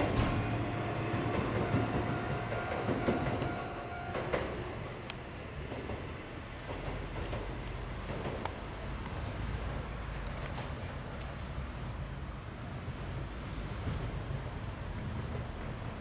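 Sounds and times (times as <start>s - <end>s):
electric train whine: 0.0s - 10.2s.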